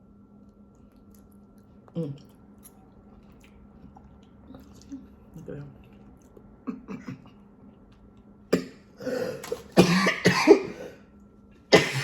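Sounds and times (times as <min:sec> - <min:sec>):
woman coughing: 0:08.6 - 0:11.0, 0:11.7 - 0:12.0.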